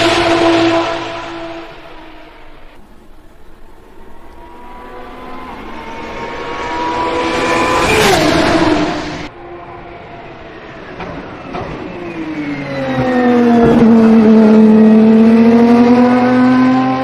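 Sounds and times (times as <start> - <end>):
sports car engine passing: 0.0 - 11.0
another engine approaching: 0.0 - 17.0.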